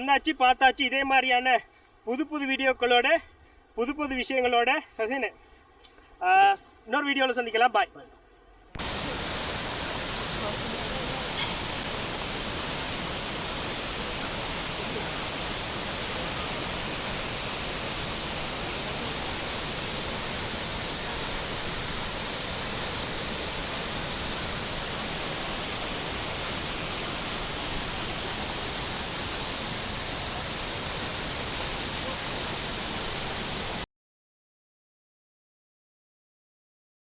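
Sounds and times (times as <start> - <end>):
waterfall rushing: 8.8 - 33.8.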